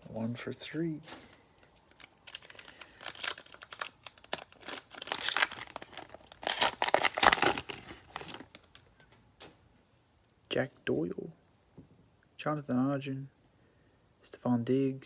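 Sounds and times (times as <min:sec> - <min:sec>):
cellophane wrapper tearing and crinkling: 0:01.9 - 0:08.8.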